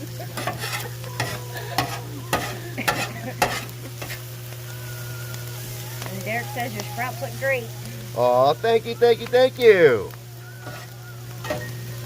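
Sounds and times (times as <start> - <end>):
vegetables sizzling on a griddle: 0.0 - 12.0
spatula scraping steel griddle: 0.1 - 4.3, 10.6 - 11.7.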